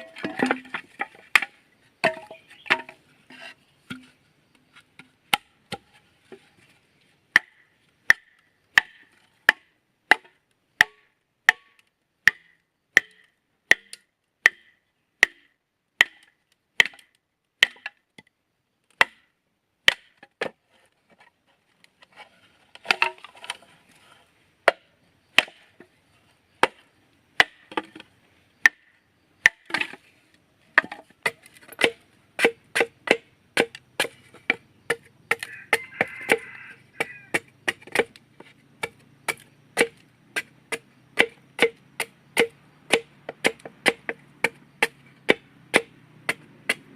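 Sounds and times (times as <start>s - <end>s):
scraping and rustling: 20.6s - 24.3s
sharp blows on wood: 38.8s - 46.9s.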